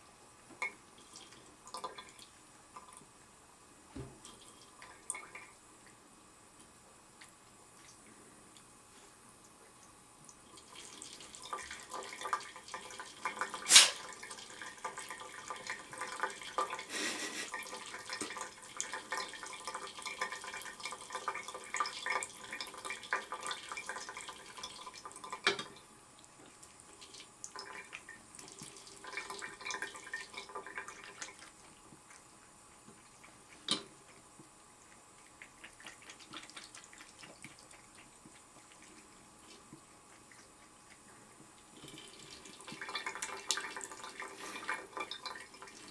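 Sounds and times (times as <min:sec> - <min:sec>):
faucet water splashing in sink: 0:10.6 - 0:25.8, 0:27.0 - 0:31.6, 0:41.8 - 0:45.9.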